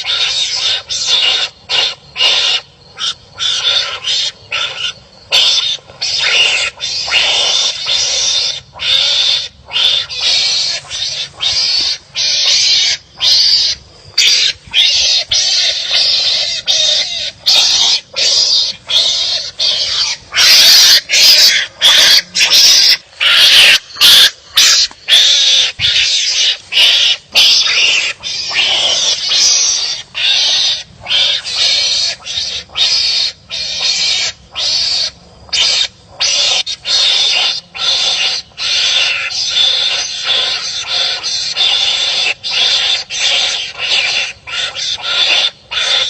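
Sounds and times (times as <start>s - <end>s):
animals giving harsh rasping calls: 0.0s - 46.0s.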